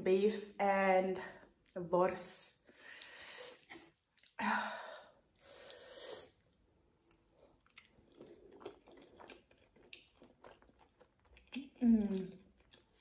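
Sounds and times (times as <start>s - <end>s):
close chewing of food: 5.1s - 13.0s.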